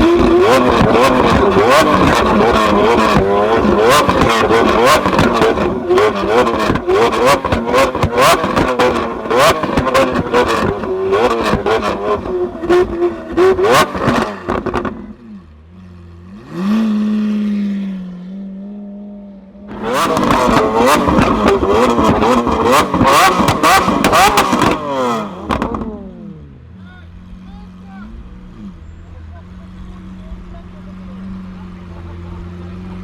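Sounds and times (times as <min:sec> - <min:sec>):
exhaust pops crackling: 0:00.0 - 0:15.1, 0:19.7 - 0:26.0
car engine revving: 0:00.0 - 0:33.0.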